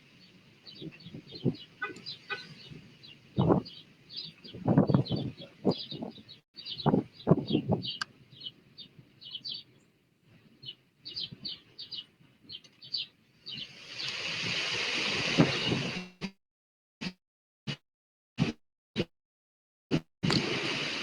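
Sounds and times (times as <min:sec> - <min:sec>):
small bird chirping: 0:00.0 - 0:09.9, 0:10.6 - 0:14.2.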